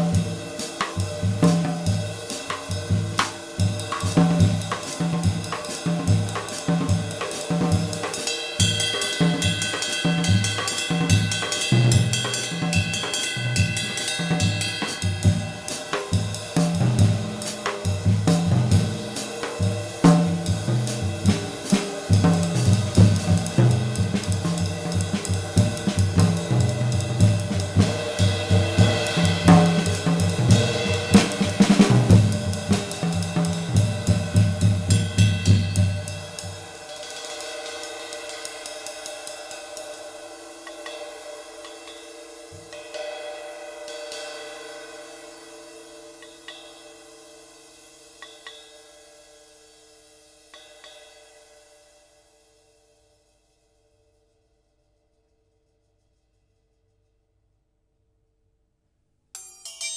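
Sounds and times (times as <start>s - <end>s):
drum kit groove: 0.0s - 43.0s
ride cymbal ringing: 59.4s - 59.9s.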